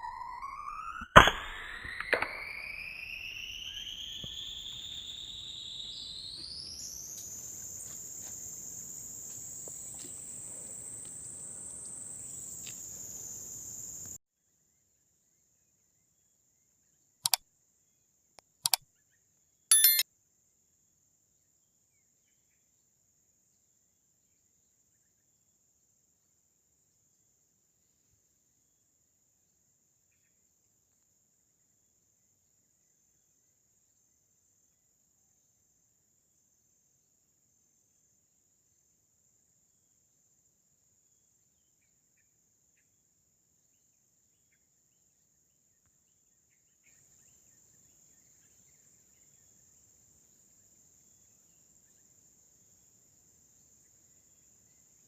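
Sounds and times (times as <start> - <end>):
insect buzzing whine: 2.3 - 14.2
short sharp clicks: 19.7 - 20.0.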